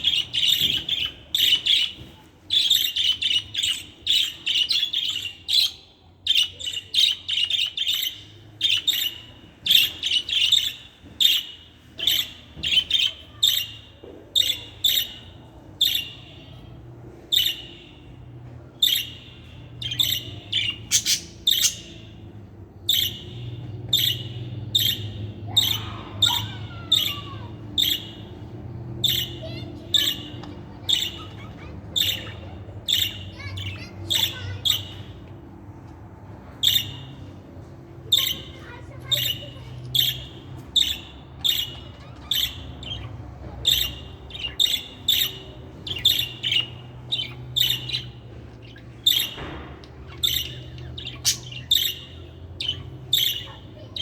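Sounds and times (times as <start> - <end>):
budgerigar chirping: 18.8 - 22.2, 22.9 - 28.3, 29.0 - 35.1, 38.1 - 54.0.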